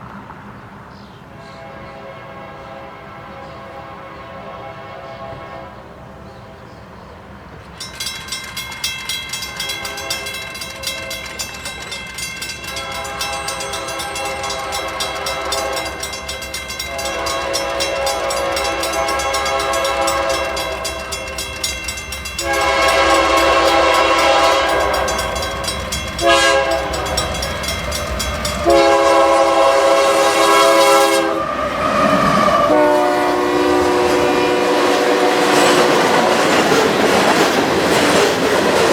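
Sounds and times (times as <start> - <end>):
train air horn blasts: 1.4 - 6.1, 9.7 - 11.4, 12.7 - 36.5
wheels clattering on rail joints: 7.6 - 29.7, 31.8 - 38.9.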